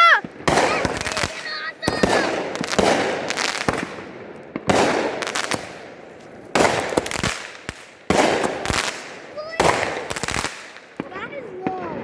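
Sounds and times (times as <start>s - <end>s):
fireworks bursts with crackling: 0.0s - 12.0s.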